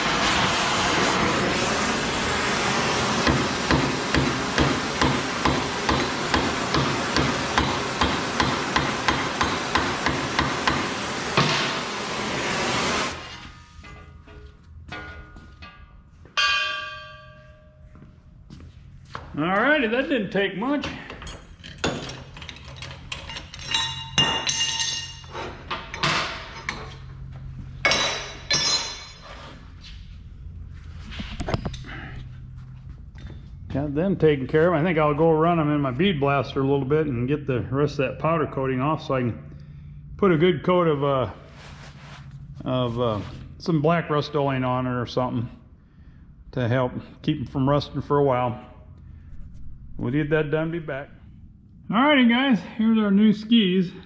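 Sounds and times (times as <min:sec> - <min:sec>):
hammer striking steel: 0:03.2 - 0:11.9, 0:13.1 - 0:18.0, 0:23.6 - 0:25.3, 0:27.8 - 0:29.2
low hum: 0:10.8 - 0:19.4, 0:26.3 - 0:35.8, 0:47.4 - 0:53.5
sharp ringing metal hits: 0:14.9 - 0:18.0
metal parts clanking: 0:20.9 - 0:27.2.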